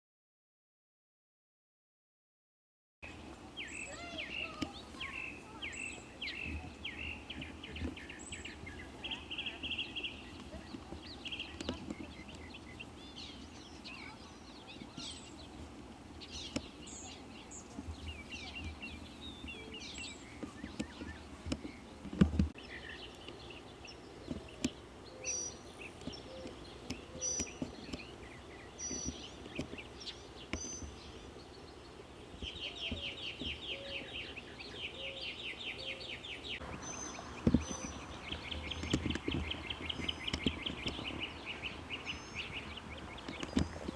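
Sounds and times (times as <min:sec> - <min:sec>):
birds chirping and calling: 0:03.0 - 0:43.9
buzzy bird trills: 0:03.2 - 0:22.0, 0:32.4 - 0:43.9.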